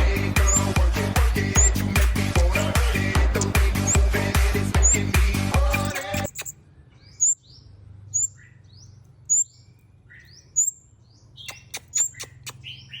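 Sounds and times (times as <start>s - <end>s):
songbird chirping: 0.0s - 13.0s
sharp clicks: 1.4s - 5.0s, 5.8s - 6.6s, 11.4s - 12.7s.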